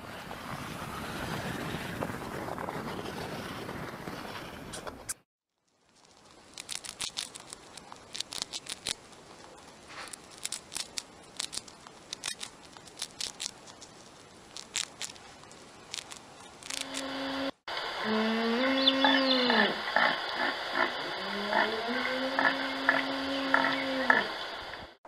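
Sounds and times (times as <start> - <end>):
hamster gnawing crunches: 5.7 - 17.4.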